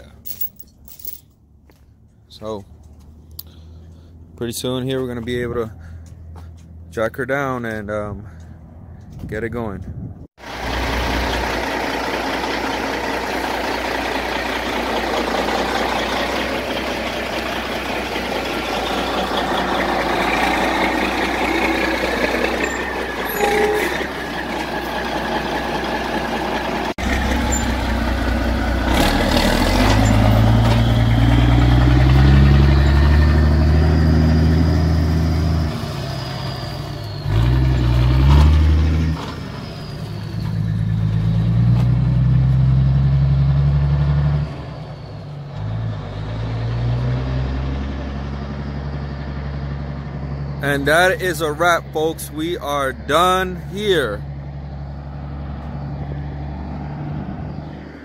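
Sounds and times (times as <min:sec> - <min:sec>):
truck engine running: 0:10.4 - 0:37.2, 0:47.6 - 0:56.7.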